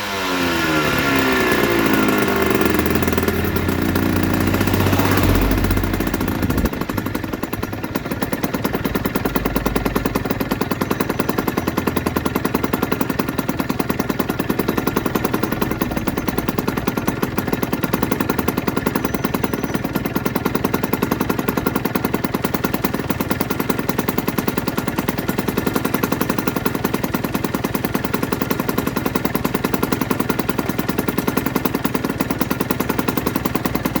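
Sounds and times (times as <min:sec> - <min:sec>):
motorcycle engine idling: 0:00.0 - 0:34.0.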